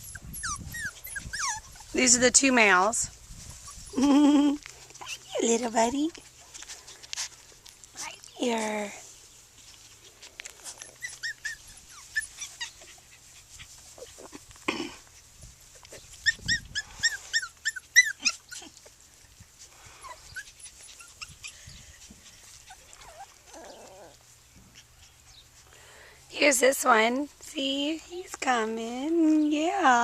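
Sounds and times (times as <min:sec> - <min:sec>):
puppies squeaking: 0:00.0 - 0:02.9, 0:03.5 - 0:05.9, 0:09.6 - 0:14.5, 0:15.1 - 0:25.7.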